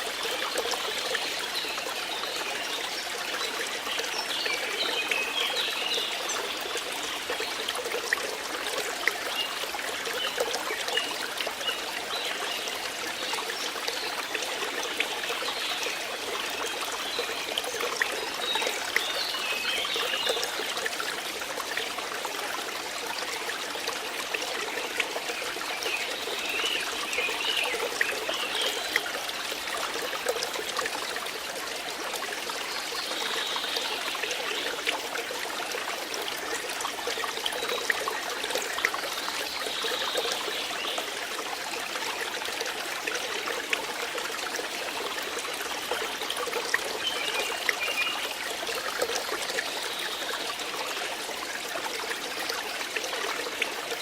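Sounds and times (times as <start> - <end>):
water flowing and trickling: 0.0 - 54.0.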